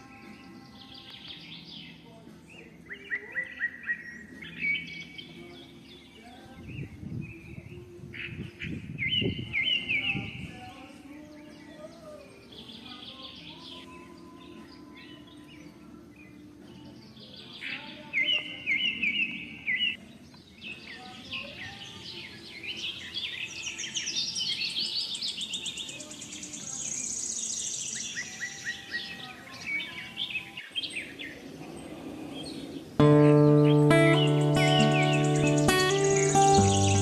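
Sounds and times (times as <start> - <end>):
songbirds singing and chirping: 0.0 - 37.0
loud guitar music: 33.0 - 37.0.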